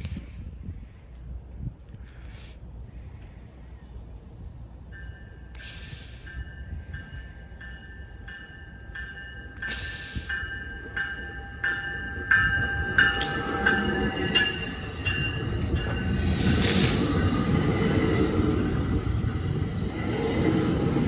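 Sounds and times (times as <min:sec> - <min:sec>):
train rumble: 0:00.0 - 0:21.0
train bell ringing: 0:04.8 - 0:21.0.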